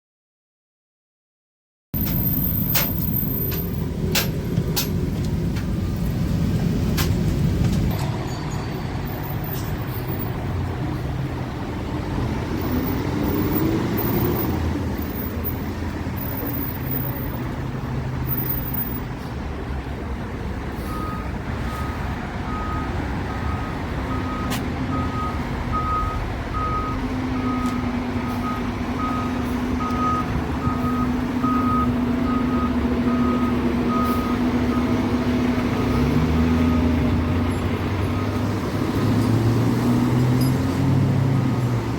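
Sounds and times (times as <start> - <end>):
diesel engine running: 2.0 - 41.9
reversing alarm beeps: 20.9 - 27.8, 28.4 - 35.0.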